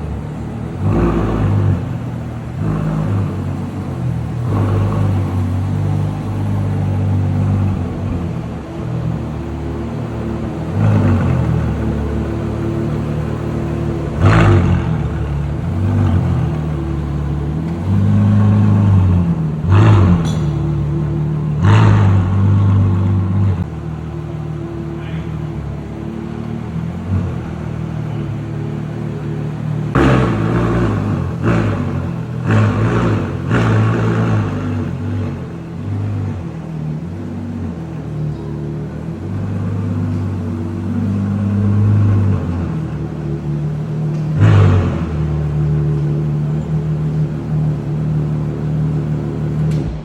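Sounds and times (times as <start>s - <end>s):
sports car engine revving: 0.0s - 50.0s.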